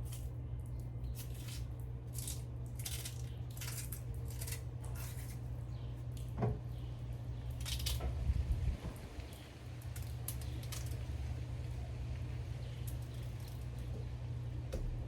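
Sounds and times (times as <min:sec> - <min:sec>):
steady low hum: 0:00.0 - 0:15.0
knife scraping cassava: 0:01.0 - 0:05.5.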